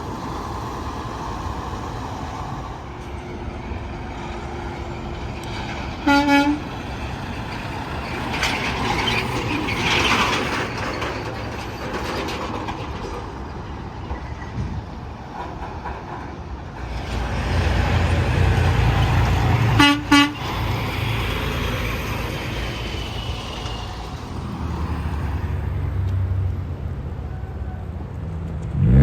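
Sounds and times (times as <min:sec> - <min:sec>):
trucks passing: 0:00.0 - 0:29.0
truck air horn blasts: 0:06.0 - 0:06.7, 0:19.7 - 0:20.5.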